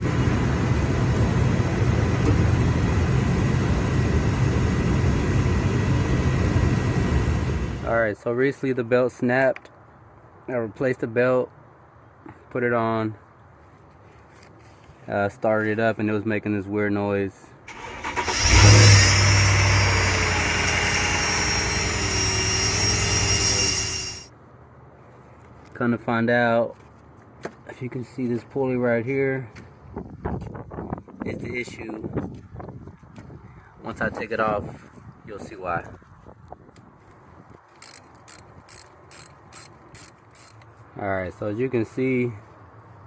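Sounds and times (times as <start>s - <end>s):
car engine low rumble: 0.0s - 7.9s, 17.7s - 24.2s
faint thin whine: 17.7s - 24.3s.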